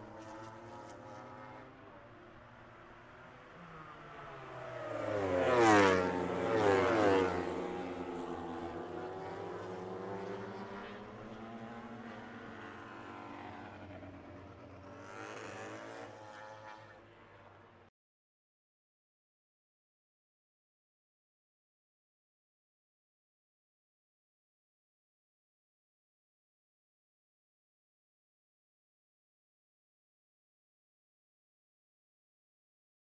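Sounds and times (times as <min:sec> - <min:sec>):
race motorcycles passing at speed: 0:00.0 - 0:17.9.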